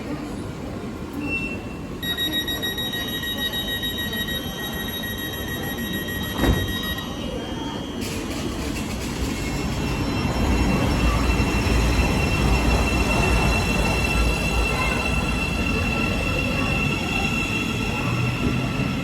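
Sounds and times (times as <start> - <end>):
train rumbling past: 7.8 - 19.0.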